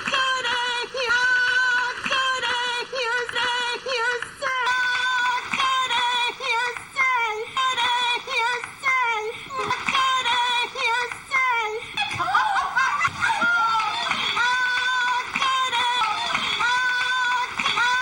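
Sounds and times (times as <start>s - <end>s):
high-pitched synthetic singing voice: 0.0s - 18.0s.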